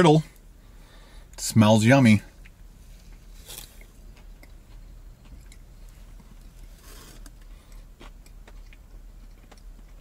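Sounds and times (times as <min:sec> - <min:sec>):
low steady hum: 0:00.0 - 0:10.0
person chewing: 0:02.3 - 0:10.0.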